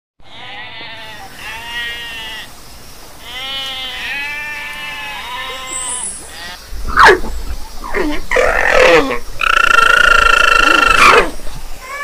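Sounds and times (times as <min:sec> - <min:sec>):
goat kid bleating: 0:00.2 - 0:02.5, 0:03.2 - 0:06.6.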